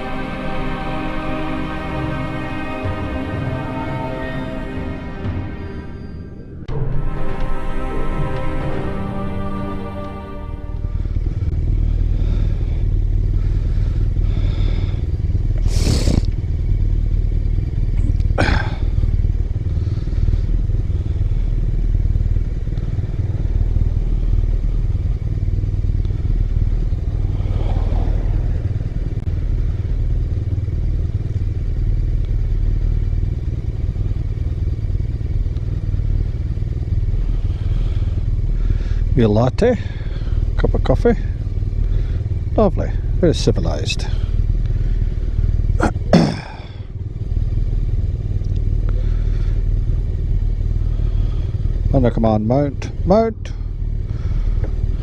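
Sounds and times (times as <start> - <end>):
motorcycle engine running: 6.6 - 55.0.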